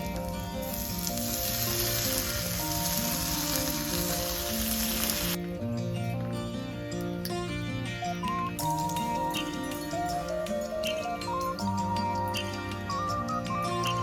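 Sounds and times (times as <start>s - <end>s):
food sizzling in a pan: 0.0s - 5.4s
background music: 0.0s - 14.0s.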